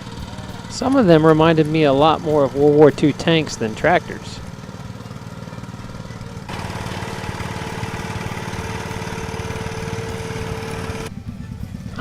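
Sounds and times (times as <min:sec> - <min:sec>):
rush of machine noise: 0:00.0 - 0:11.1
engine idling: 0:00.0 - 0:12.0
steady machine whine: 0:00.0 - 0:12.0.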